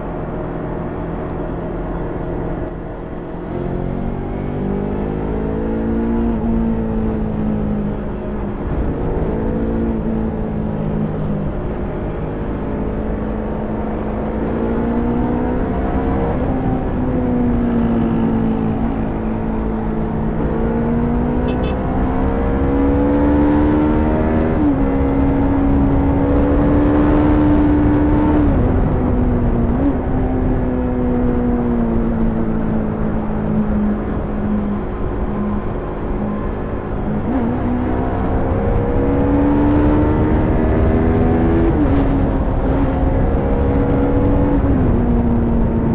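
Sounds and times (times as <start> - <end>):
motorcycle engine revving: 3.4 - 45.9.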